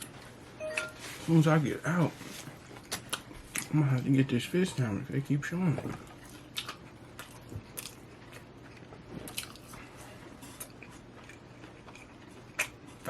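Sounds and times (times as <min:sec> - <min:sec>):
person chewing food: 0:02.4 - 0:04.0, 0:05.9 - 0:13.0.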